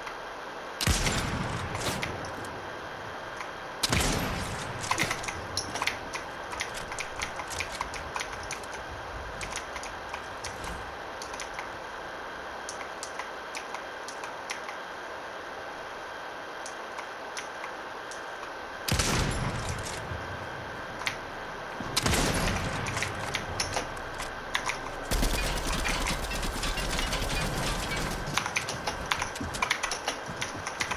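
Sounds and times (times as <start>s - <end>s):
video game gunshots: 0.8s - 2.4s, 3.8s - 7.9s, 21.8s - 23.7s, 25.0s - 30.2s.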